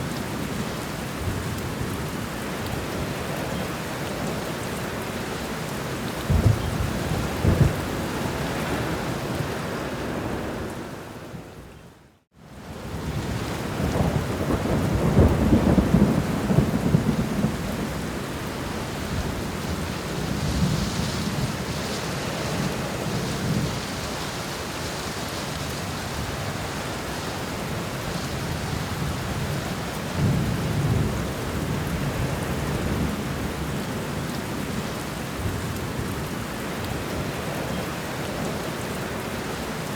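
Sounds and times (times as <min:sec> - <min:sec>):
steady rain: 0:00.0 - 0:39.9
thunder rumbling: 0:06.2 - 0:10.6, 0:13.1 - 0:21.7.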